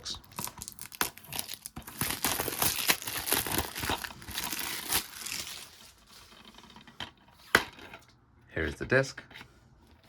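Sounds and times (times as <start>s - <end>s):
plastic wrap crinkling: 0.2s - 6.2s.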